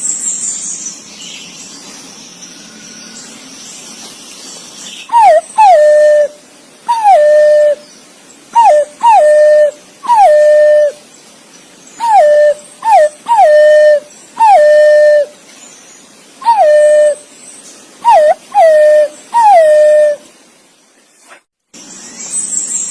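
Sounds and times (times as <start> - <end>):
pigeon whistled calls: 5.1 - 7.8, 8.6 - 11.0, 12.0 - 15.3, 16.4 - 17.2, 18.0 - 20.2.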